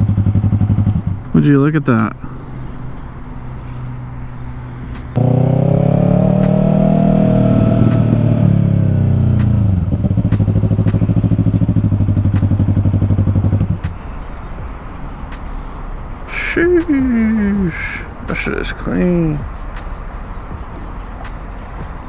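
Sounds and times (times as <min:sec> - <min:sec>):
motorcycle engine running: 0:00.0 - 0:01.7, 0:03.6 - 0:15.4.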